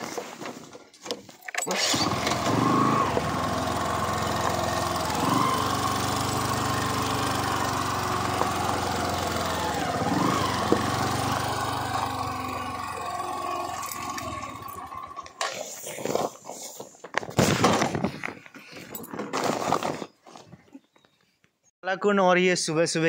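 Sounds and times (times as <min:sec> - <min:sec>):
motorcycle engine revving: 0:01.7 - 0:15.6
motorcycle engine running: 0:02.1 - 0:15.4.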